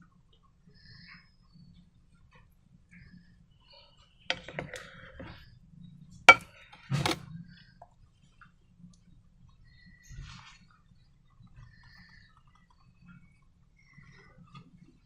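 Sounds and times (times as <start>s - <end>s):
soft scrape: 10.1s - 10.7s.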